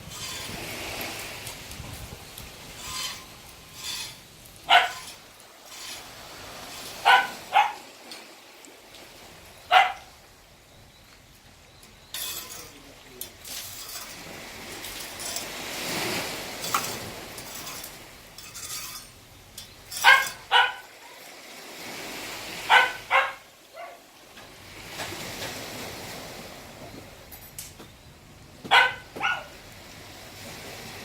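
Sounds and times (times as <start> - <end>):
dog barking: 4.7 - 5.2, 7.0 - 7.8, 9.7 - 10.1, 20.0 - 21.2, 22.6 - 24.1, 28.7 - 29.6.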